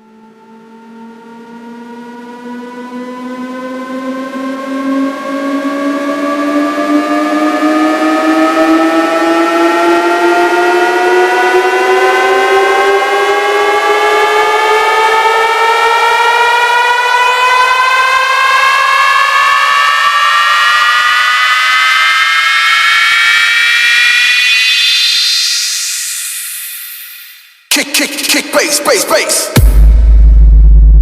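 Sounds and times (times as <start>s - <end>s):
rising electronic tone sweep: 19.2s - 27.7s.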